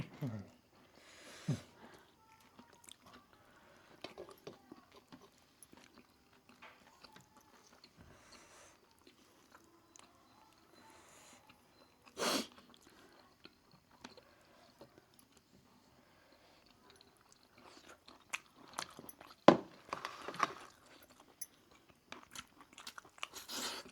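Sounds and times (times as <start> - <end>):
person chewing: 2.0 - 10.6, 11.4 - 15.5, 16.6 - 23.9.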